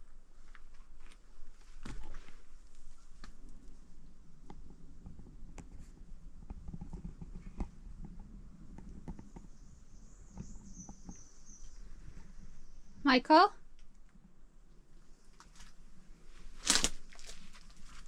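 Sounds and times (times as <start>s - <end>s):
faint high chirping: 9.4s - 13.1s.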